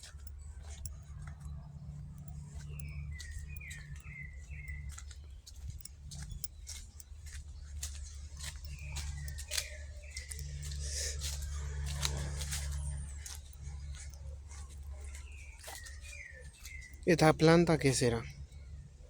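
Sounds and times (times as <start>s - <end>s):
songbird singing: 0.0s - 19.0s
steady low hum: 0.0s - 19.0s.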